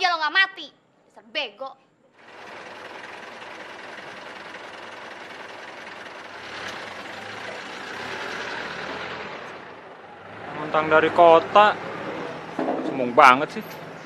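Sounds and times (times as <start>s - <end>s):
car engine running: 2.2s - 12.6s
car pulling away: 2.2s - 14.0s.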